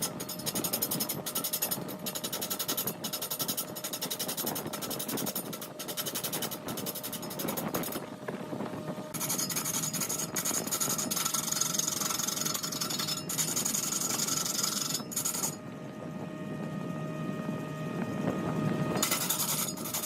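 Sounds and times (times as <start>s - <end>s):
turning tool scraping wood: 0.0s - 8.1s, 9.2s - 15.6s, 19.0s - 20.0s
wood lathe humming: 9.1s - 15.8s, 19.0s - 20.0s.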